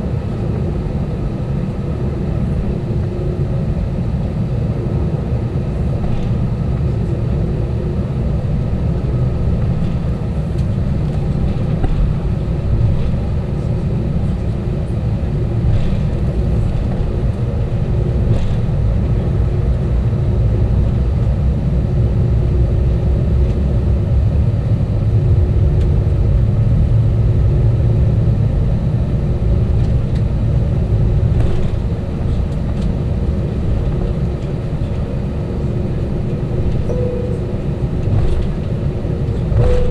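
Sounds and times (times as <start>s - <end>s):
aircraft cabin engine rumble: 0.0s - 39.9s
faint steady tones: 36.9s - 37.7s.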